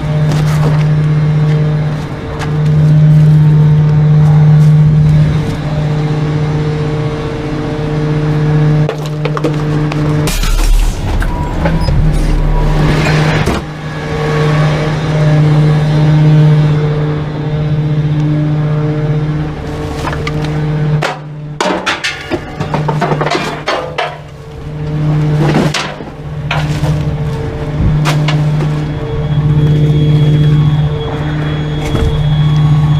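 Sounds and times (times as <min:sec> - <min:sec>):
garbage truck engine humming: 0:00.0 - 0:32.9
sharp knocks and clatter: 0:21.0 - 0:24.3.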